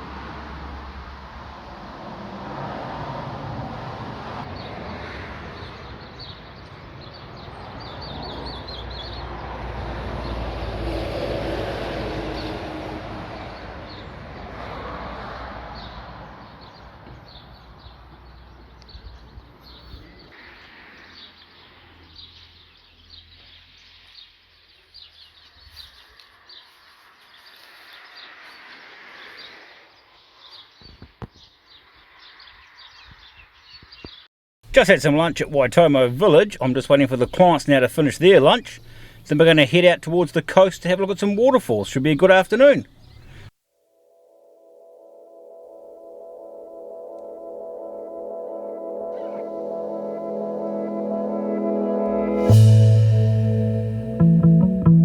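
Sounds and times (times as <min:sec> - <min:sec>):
vehicle passing by: 0:00.0 - 0:18.1, 0:26.0 - 0:30.2
small birds chirping: 0:05.6 - 0:09.4, 0:16.6 - 0:34.3, 0:42.8 - 0:43.5.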